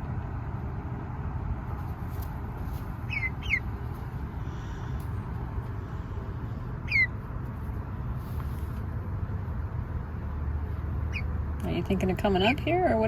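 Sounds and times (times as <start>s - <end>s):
chick peeping: 3.0s - 3.8s, 6.8s - 7.2s, 11.1s - 11.3s.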